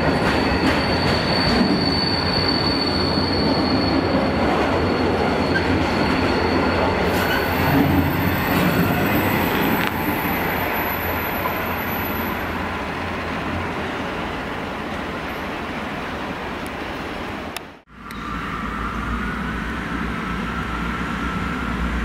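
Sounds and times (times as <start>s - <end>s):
high wheel squeal: 0.0s - 12.6s.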